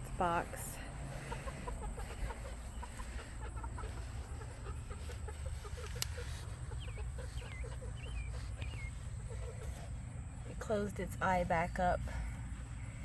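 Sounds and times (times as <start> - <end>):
steady low rumble: 0.0 - 13.0
chickens clucking softly: 1.1 - 10.4.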